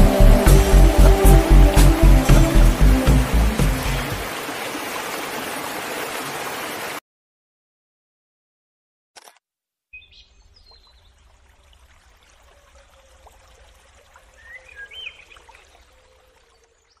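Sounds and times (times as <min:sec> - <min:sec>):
low rumble: 0:00.0 - 0:04.2
bird chirps: 0:09.9 - 0:11.1, 0:14.4 - 0:17.0.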